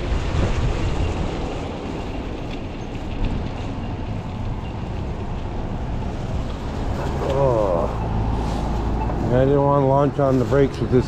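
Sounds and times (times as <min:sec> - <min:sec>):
wind rumble on microphone: 0:00.0 - 0:07.3
street and traffic noise: 0:00.0 - 0:11.0.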